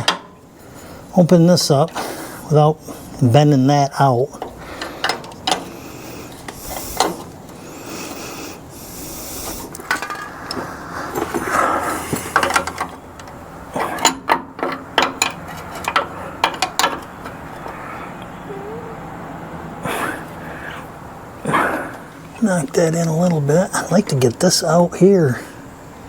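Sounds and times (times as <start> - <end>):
metal scraping and rubbing: 9.1 - 13.1.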